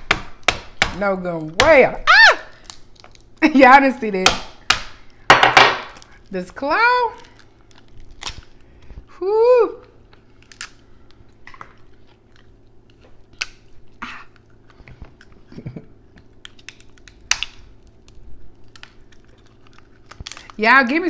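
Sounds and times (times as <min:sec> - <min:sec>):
crab shells cracking: 0:02.4 - 0:03.5, 0:07.1 - 0:08.9, 0:09.8 - 0:15.4, 0:16.1 - 0:20.7
chewing: 0:18.6 - 0:20.6.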